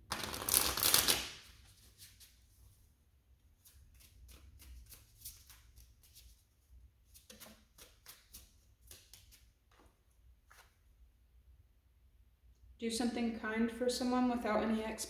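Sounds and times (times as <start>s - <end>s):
cards being shuffled: 0.1s - 2.3s, 7.1s - 10.8s.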